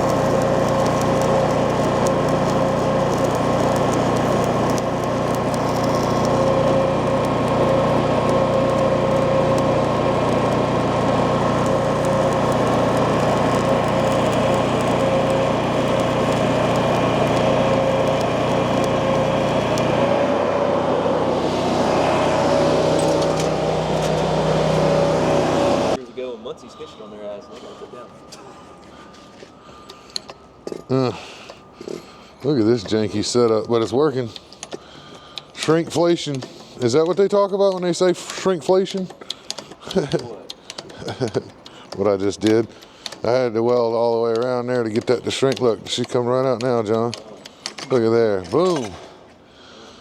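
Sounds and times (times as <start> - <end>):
machine humming: 0.0 - 26.0.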